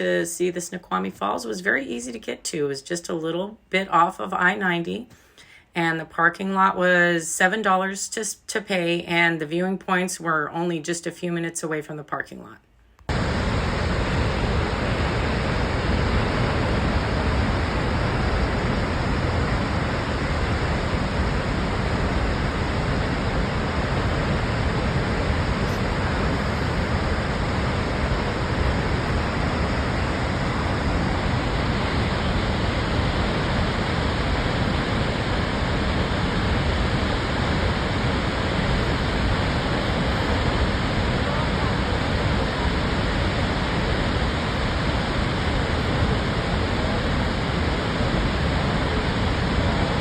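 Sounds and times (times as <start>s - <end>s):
waterfall roaring: 13.1s - 50.0s.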